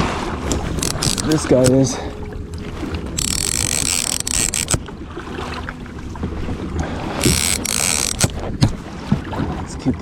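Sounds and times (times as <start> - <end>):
fishing reel whirring: 0.5 - 2.0, 3.1 - 4.9, 7.1 - 8.8.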